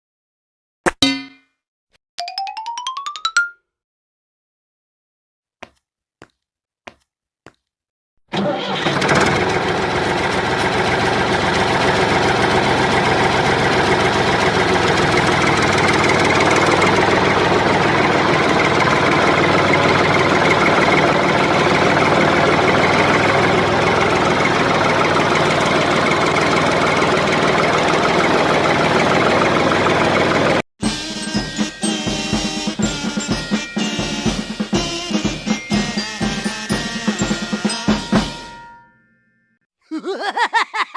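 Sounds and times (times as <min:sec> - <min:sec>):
engine running: 0:08.3 - 0:38.4.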